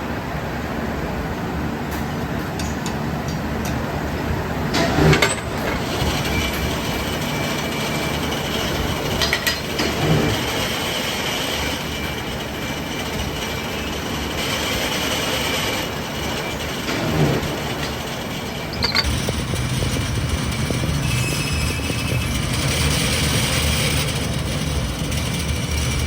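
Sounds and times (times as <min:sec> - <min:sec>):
metalworking machinery running: 0:04.7 - 0:26.0
metallic knocks: 0:18.8 - 0:26.0.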